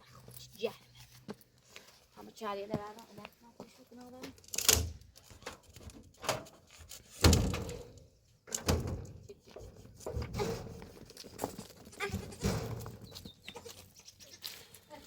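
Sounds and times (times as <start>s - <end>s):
irregular knocks and thuds: 7.2s - 13.3s.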